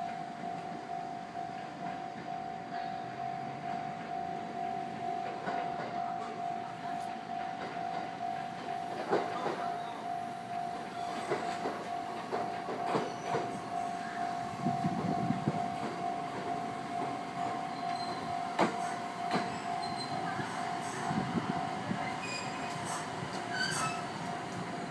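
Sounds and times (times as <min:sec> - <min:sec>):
train cars rumbling past: 0:00.0 - 0:24.9
train wheels clicking over rail joints: 0:05.1 - 0:06.4, 0:07.0 - 0:09.9, 0:10.5 - 0:24.9.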